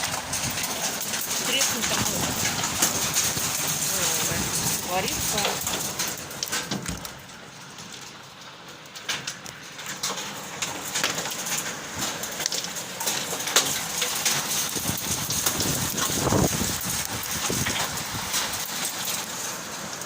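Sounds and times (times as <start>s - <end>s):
heavy rain hissing: 0.0s - 7.9s, 10.2s - 20.0s
hailstones clicking on surfaces: 0.0s - 20.0s.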